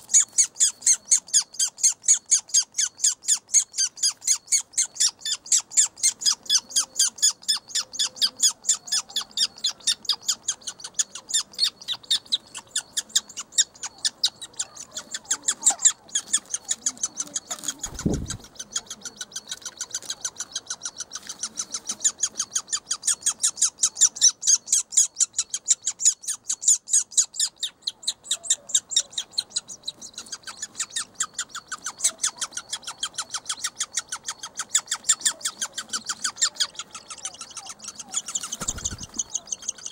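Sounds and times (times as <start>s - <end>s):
woodpecker chicks begging calls: 0.0s - 39.9s.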